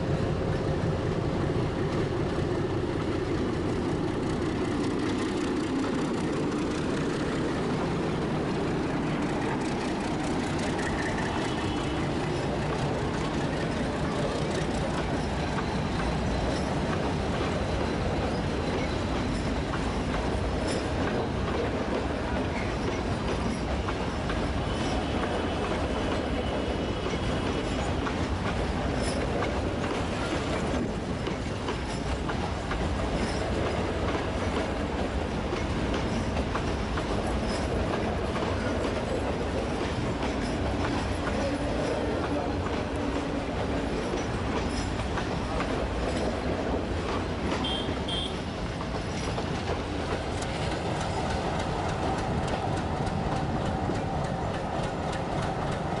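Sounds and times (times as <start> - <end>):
train wheels clattering over rails: 0.0 - 56.0
faint high wheel squeal: 9.2 - 20.0.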